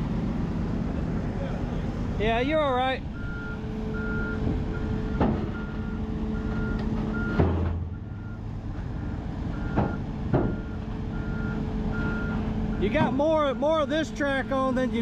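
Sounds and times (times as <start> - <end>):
excavator engine running: 0.0 - 15.0
excavator travel alarm beeping: 3.1 - 15.0.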